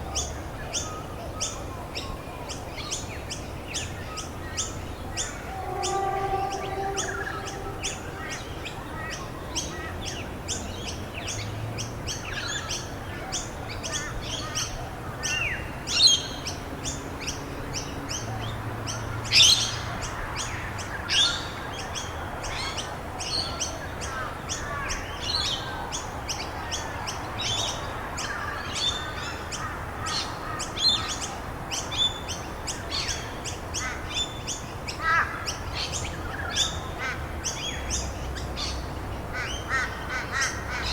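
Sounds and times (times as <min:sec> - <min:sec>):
wild birds chirping: 0:03.8 - 0:09.5.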